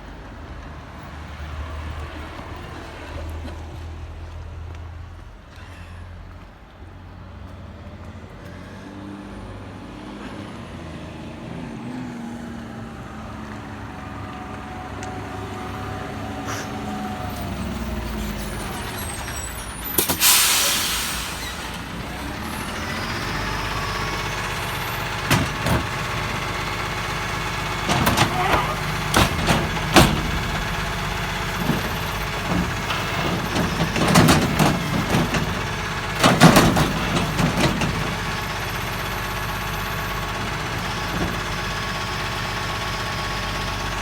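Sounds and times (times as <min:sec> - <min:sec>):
garbage truck engine running: 0:15.5 - 0:44.0
air brake hiss: 0:16.4 - 0:17.0, 0:19.9 - 0:21.8.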